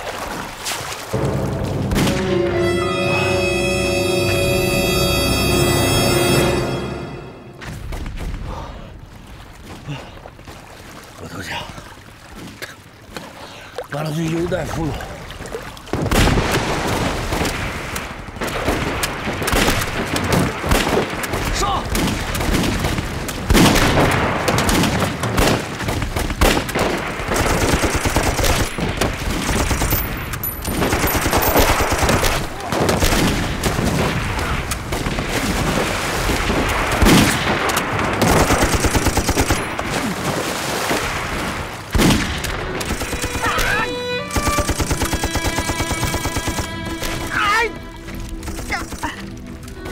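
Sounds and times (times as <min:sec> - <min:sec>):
heavy gunfire: 0:16.0 - 0:30.0, 0:30.7 - 0:40.0
rapid machine-gun and rifle fire: 0:16.0 - 0:40.0, 0:44.4 - 0:46.7.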